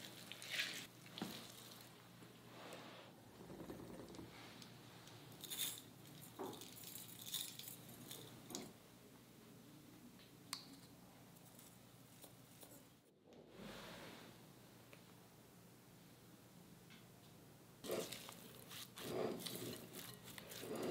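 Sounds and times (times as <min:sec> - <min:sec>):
metal spoon scraping glass jar: 0:17.8 - 0:20.9.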